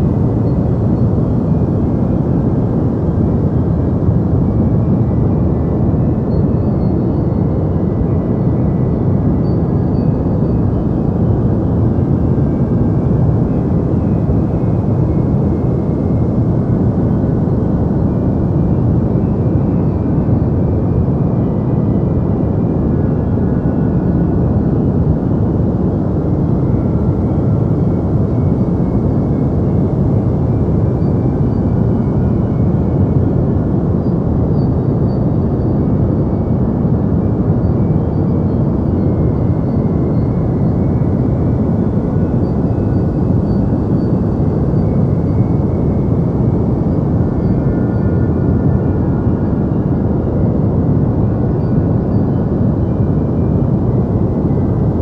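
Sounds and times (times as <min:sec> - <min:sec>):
deep white noise rush: 0:00.0 - 0:07.0.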